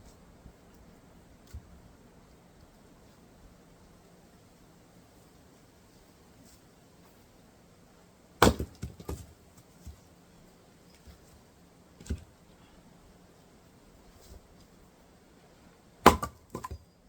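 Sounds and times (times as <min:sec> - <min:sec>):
log splitting crack: 0:08.4 - 0:09.3, 0:16.0 - 0:16.8.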